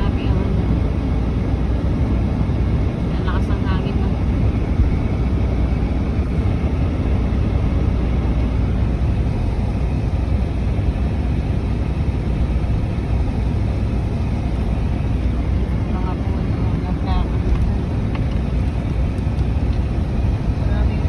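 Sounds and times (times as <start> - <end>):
car engine: 0.0 - 21.0
road noise: 0.0 - 21.0
strong wind noise: 0.0 - 21.0.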